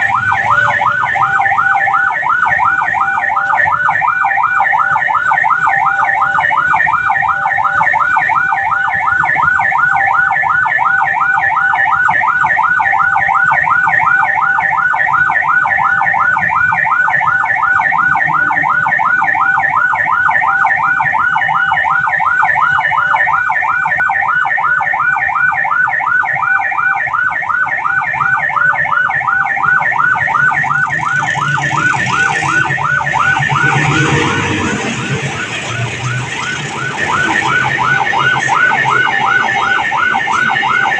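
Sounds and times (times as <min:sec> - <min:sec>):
level crossing alarm dinging: 0:00.0 - 0:40.9
train rushing rumble: 0:30.5 - 0:40.9.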